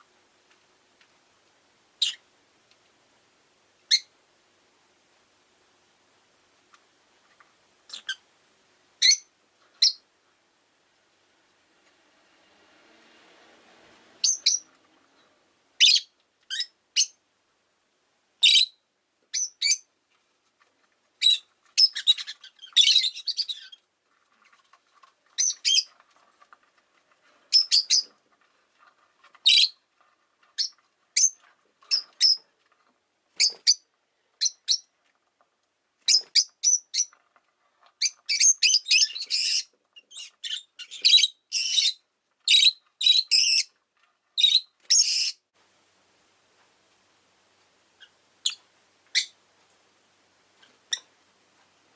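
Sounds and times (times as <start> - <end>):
lovebird chirping: 2.0 - 2.2, 3.9 - 4.1, 7.9 - 8.2, 9.0 - 10.0, 14.2 - 14.8, 15.8 - 17.2, 18.4 - 19.9, 21.2 - 23.8, 25.4 - 25.9, 27.5 - 28.1, 29.4 - 29.8, 30.6 - 32.4, 33.4 - 34.9, 36.0 - 37.2, 38.0 - 43.8, 44.4 - 45.4, 48.0 - 49.4.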